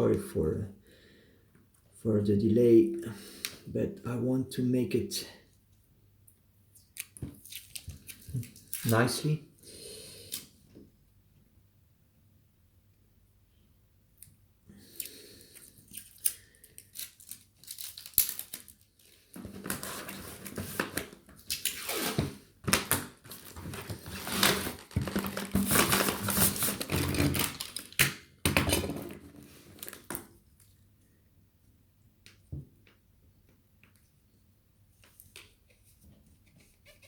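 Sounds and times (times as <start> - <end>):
packing materials crinkling: 7.0 - 9.3, 15.6 - 28.1, 29.5 - 30.7.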